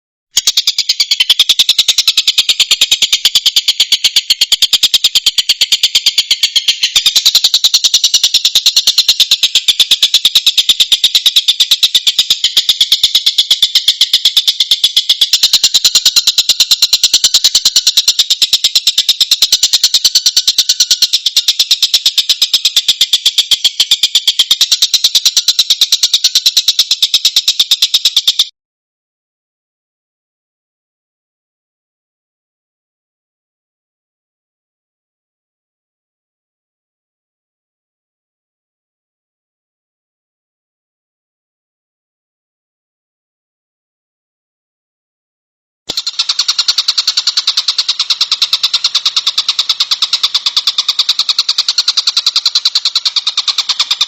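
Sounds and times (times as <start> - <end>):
kingfisher chattering call: 0.4 - 28.5, 45.9 - 54.0.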